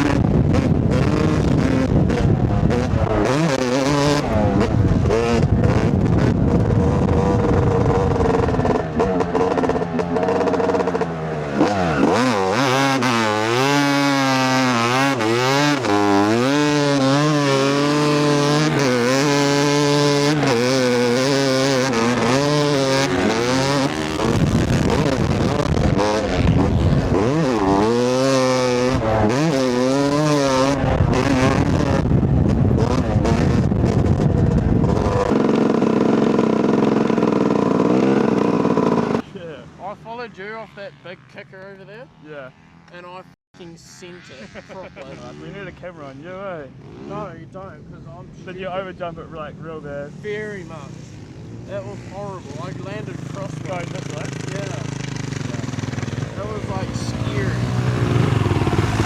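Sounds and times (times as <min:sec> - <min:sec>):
dirt bike engine revving: 0:00.0 - 0:47.6, 0:48.4 - 0:59.0.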